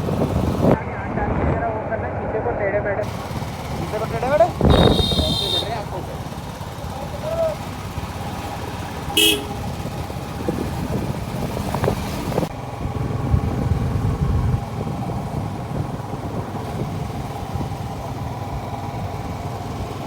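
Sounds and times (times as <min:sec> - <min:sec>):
wind noise: 0:00.0 - 0:02.0, 0:04.4 - 0:05.6, 0:09.2 - 0:20.0
vehicle engine rumble: 0:00.0 - 0:20.0.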